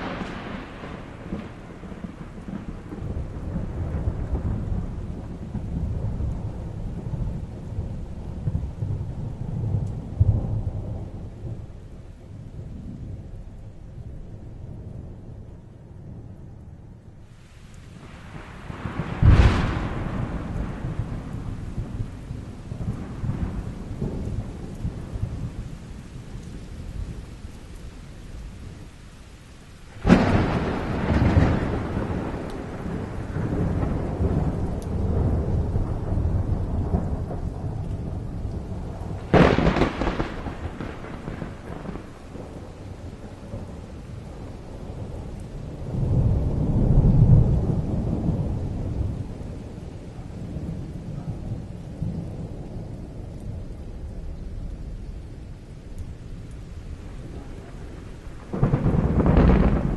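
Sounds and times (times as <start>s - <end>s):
thunder cracks: 0.0s - 11.7s, 18.0s - 25.6s, 29.9s - 49.8s, 56.0s - 59.9s
rolling thunder rumble: 0.0s - 29.0s, 29.6s - 59.9s
steady rain: 0.0s - 59.9s.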